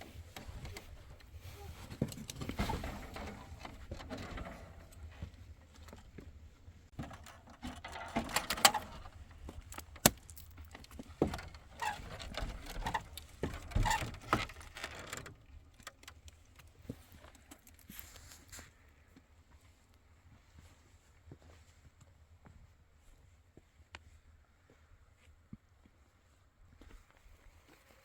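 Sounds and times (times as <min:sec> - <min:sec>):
rustling of things handled: 0:00.0 - 0:21.9
knocks and clicks of handling: 0:06.9 - 0:17.8.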